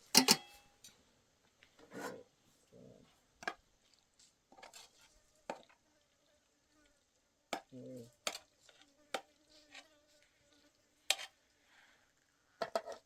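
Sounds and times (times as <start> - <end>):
faint short scrapes: 1.8 - 2.3.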